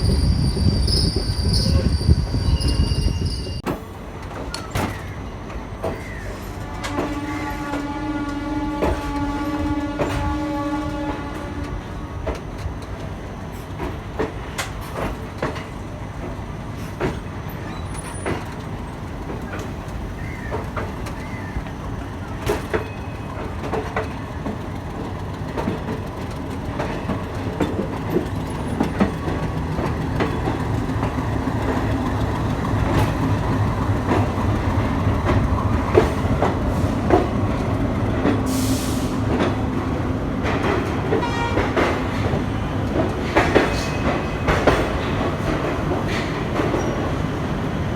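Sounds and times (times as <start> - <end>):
train rumbling on rails: 0.0 - 47.9
wheels clicking over rail joints: 13.7 - 38.5.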